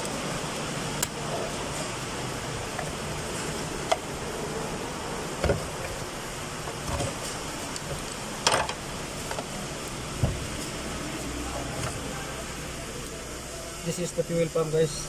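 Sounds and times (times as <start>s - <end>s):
steady background hum: 0.0s - 15.0s
hand tools knocking and clattering: 10.2s - 10.8s.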